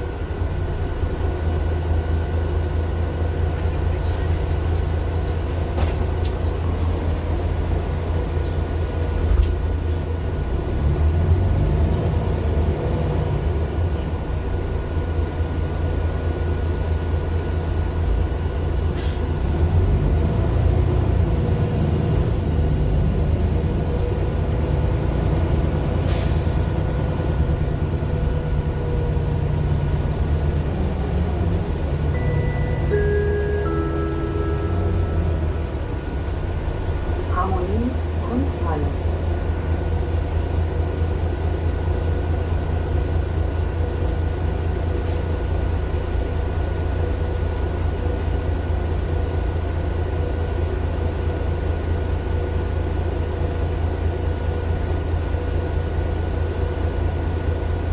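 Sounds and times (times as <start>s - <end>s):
bus diesel engine rumble: 0.0s - 57.9s
electronic chime: 32.1s - 35.6s.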